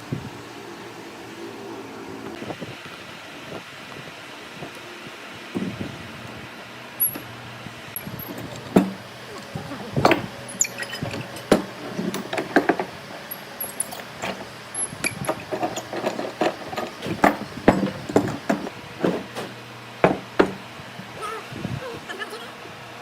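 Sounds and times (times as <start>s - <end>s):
wood and hand tools knocking: 8.3s - 9.1s, 11.0s - 12.9s, 15.2s - 20.6s.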